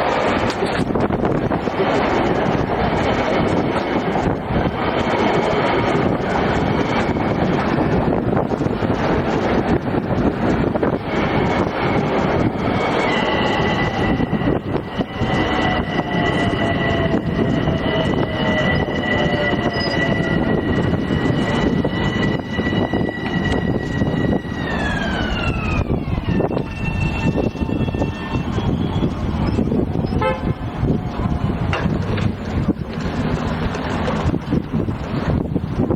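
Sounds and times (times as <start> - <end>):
electric train rolling rumble: 0.0 - 35.9
high tones sliding down in pitch: 11.0 - 31.4.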